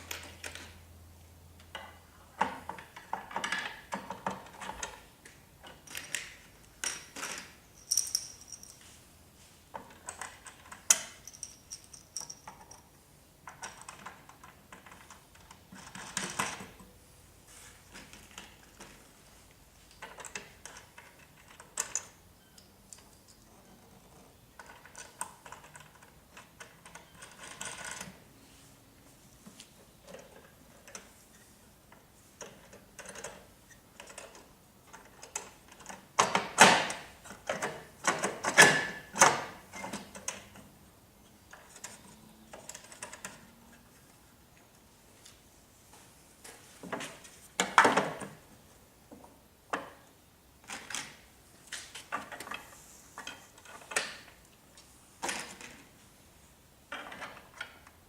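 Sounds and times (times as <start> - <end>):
parts clicking and rattling: 1.6 - 9.0, 9.7 - 16.9, 17.8 - 28.2, 31.9 - 40.7.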